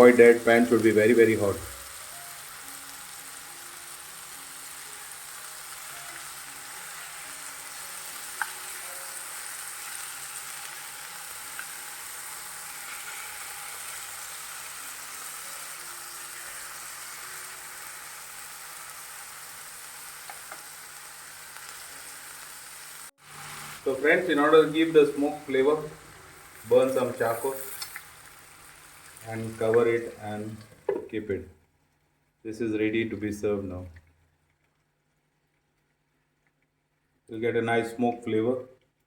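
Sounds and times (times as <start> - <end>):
chicken sizzling in a hot pan: 0.0 - 31.0.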